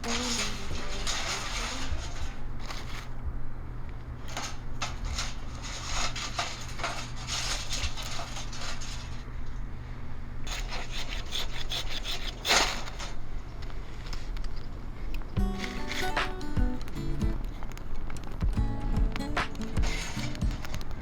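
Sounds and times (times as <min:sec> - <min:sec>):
scraping and rubbing strokes: 0:00.0 - 0:03.1, 0:04.4 - 0:09.3, 0:10.5 - 0:13.2, 0:19.4 - 0:21.0
steady low hum: 0:00.0 - 0:21.0.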